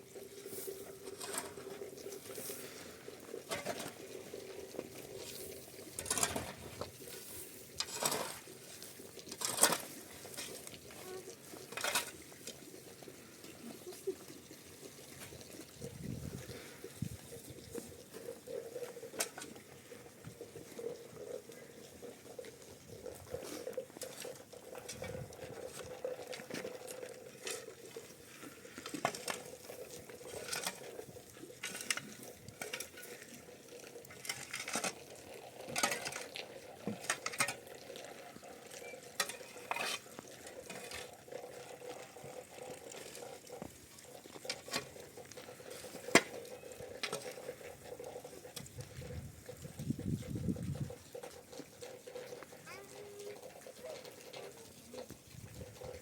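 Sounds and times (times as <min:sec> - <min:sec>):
metal utensils clinking on pots: 0:00.7 - 0:12.7, 0:16.6 - 0:19.6, 0:23.4 - 0:41.8, 0:44.3 - 0:48.2.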